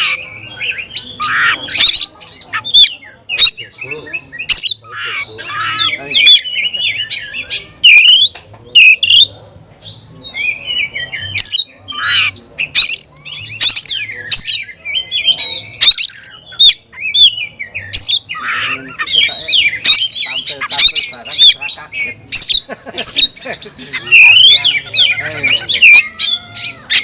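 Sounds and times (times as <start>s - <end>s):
harsh squawky bird notes: 0.0s - 9.4s, 10.0s - 27.0s
bird singing whistled phrases: 5.8s - 9.3s.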